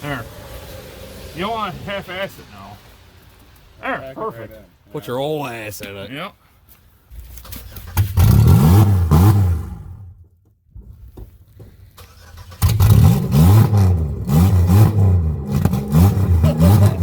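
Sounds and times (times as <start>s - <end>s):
car engine revving: 0.0s - 4.7s, 7.4s - 10.2s, 12.0s - 17.0s.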